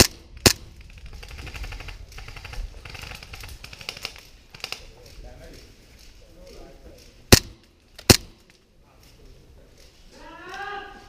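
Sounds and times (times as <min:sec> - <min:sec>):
airsoft gun shot: 0:00.0 - 0:00.8, 0:07.3 - 0:08.4
small clicks: 0:00.4 - 0:06.2.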